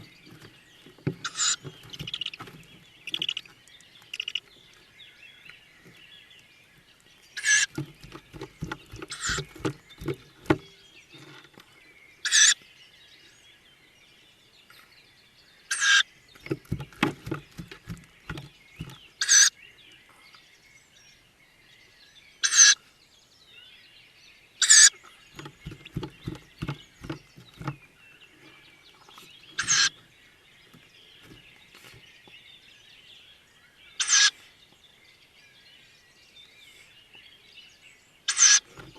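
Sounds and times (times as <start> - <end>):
owl chicks hissing begging calls: 1.2 - 2.5, 9.1 - 9.4, 12.2 - 12.6, 15.7 - 16.0, 19.2 - 19.5, 22.4 - 22.8, 24.6 - 25.0, 29.5 - 30.0, 34.0 - 34.6, 38.3 - 38.7.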